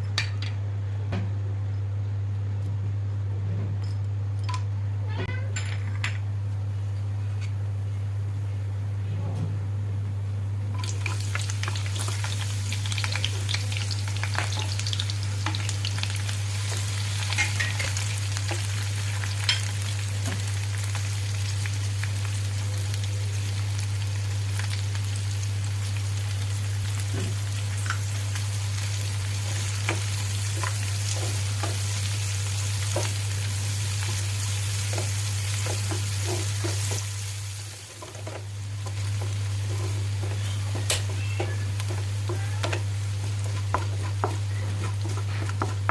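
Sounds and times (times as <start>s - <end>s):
food sizzling in hot oil: 10.7s - 45.9s.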